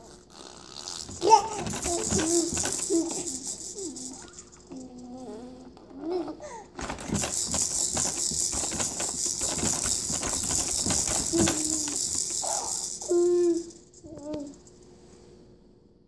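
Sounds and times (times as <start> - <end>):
baby making hissing rattle: 10.5 - 14.6
baby squeaking: 11.1 - 14.3.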